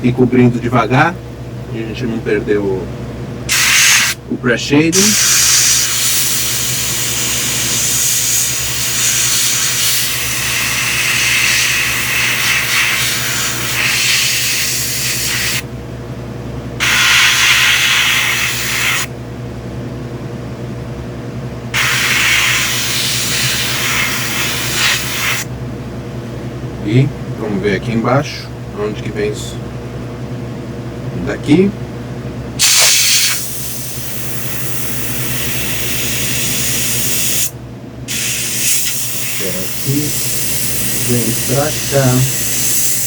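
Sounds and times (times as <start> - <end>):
steady low hum: 0.0 - 43.0
airbrush spraying: 3.5 - 4.2, 5.0 - 15.6, 16.8 - 19.1, 21.8 - 25.5, 32.6 - 37.5, 38.1 - 43.0.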